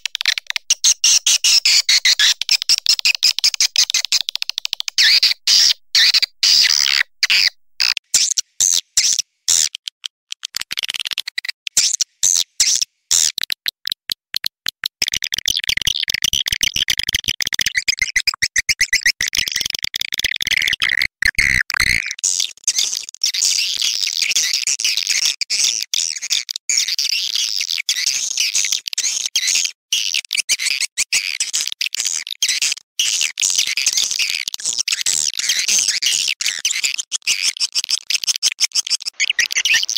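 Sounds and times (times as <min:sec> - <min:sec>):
swiftlet clicks and chirps: 0:00.0 - 0:08.4, 0:17.7 - 0:22.2, 0:39.1 - 0:39.9
high-pitched twittering chorus: 0:39.2 - 0:39.9.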